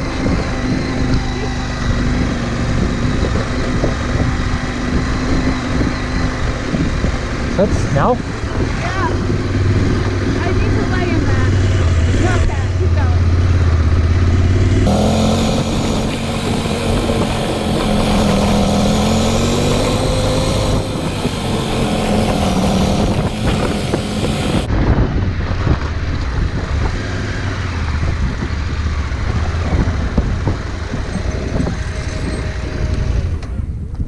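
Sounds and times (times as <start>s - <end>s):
motorcycle engine: 0.0s - 33.9s
wind noise on microphone: 0.0s - 34.0s
high hiss: 14.9s - 24.7s.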